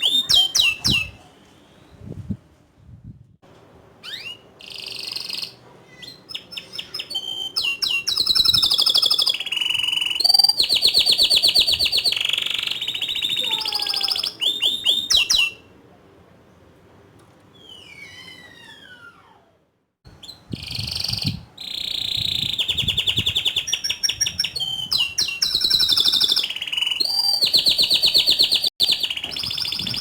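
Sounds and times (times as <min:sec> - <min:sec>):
canary singing trills: 0:00.0 - 0:01.2, 0:04.0 - 0:15.7, 0:20.2 - 0:30.0.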